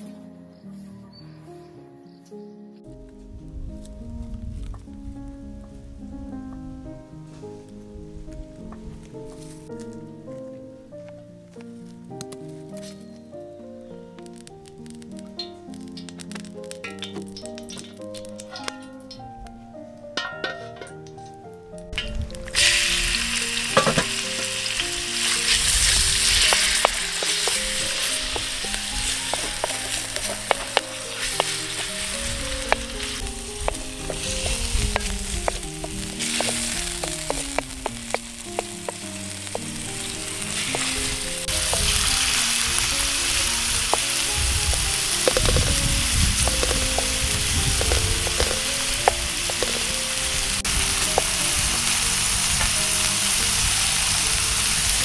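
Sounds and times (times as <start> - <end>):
chicken sizzling in frying pan: 14.2 - 19.3, 21.9 - 55.0.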